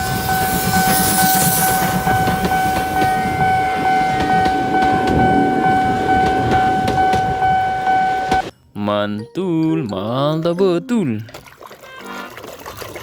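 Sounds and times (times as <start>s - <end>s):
moving train rumble: 0.0s - 8.5s.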